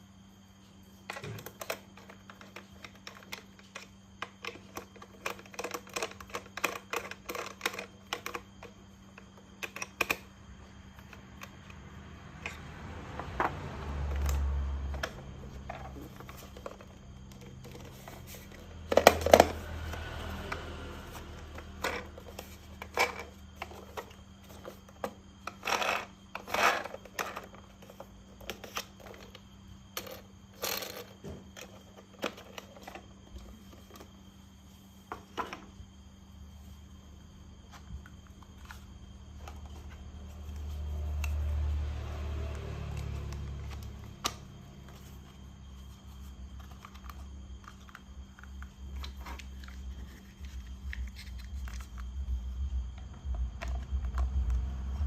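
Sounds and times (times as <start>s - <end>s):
plastic toy parts clicking and rattling: 1.1s - 8.7s, 21.5s - 29.4s, 30.0s - 33.0s
plastic parts clattering: 1.1s - 8.8s, 14.1s - 19.6s, 21.5s - 29.4s.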